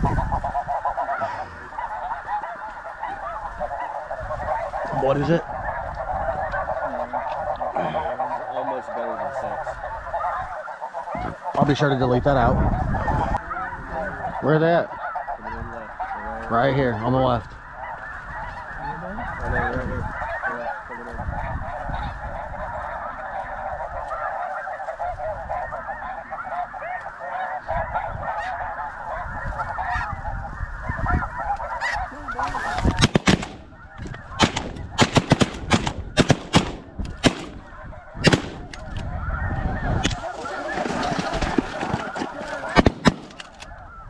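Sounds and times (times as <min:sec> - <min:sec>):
snow geese honking: 0:00.0 - 0:44.0
shotgun shots: 0:33.0 - 0:33.7, 0:34.4 - 0:38.8, 0:42.7 - 0:43.5.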